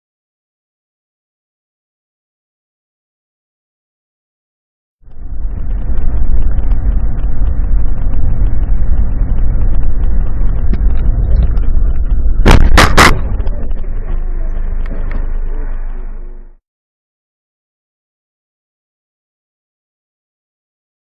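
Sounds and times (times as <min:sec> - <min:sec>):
car road and engine rumble: 0:05.1 - 0:16.6
loud bangs: 0:06.0 - 0:16.5.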